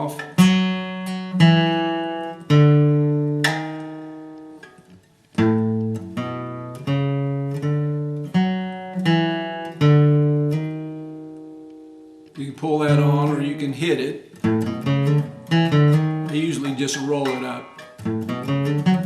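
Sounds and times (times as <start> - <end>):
acoustic guitar single notes: 0.0 - 19.0.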